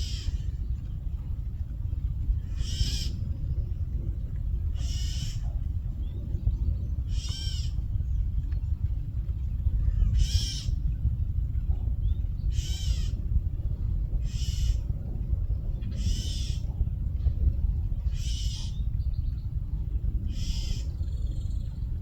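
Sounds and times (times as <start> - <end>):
low rumble: 0.0 - 22.0
bird squawking in alarm: 20.4 - 20.9.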